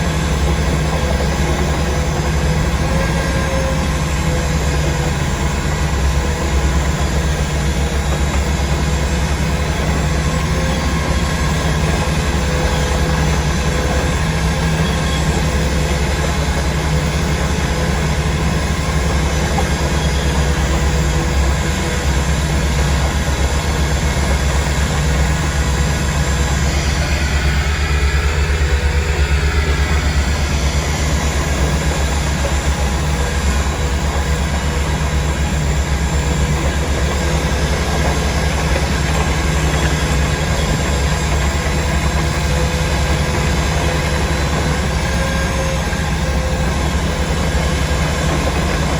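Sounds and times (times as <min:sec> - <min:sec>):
heavy engine droning: 0:00.0 - 0:48.9.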